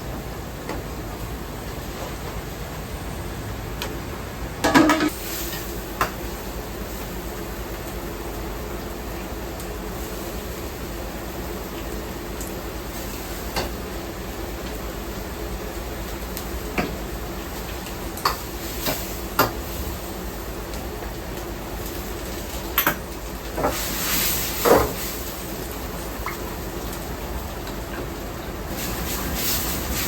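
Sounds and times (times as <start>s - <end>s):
dishes and utensils clinking: 4.6s - 5.1s.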